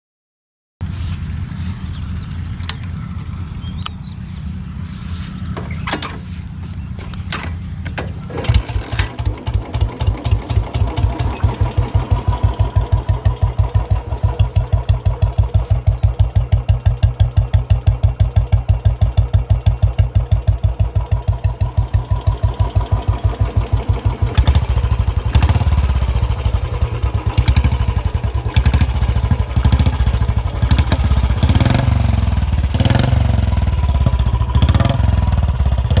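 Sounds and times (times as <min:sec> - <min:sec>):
low hum: 0:00.8 - 0:34.7
motorcycle engine idling and revving: 0:00.8 - 0:36.0
clicks: 0:02.4 - 0:03.0, 0:07.0 - 0:09.3.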